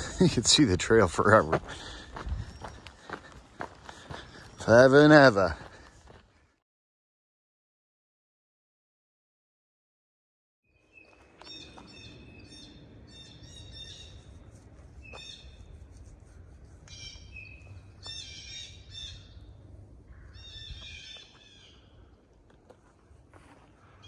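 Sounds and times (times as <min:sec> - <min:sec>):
steady low rumble: 0:00.0 - 0:04.7, 0:18.6 - 0:21.1
birds calling: 0:00.0 - 0:06.6, 0:10.8 - 0:22.3, 0:23.0 - 0:24.0.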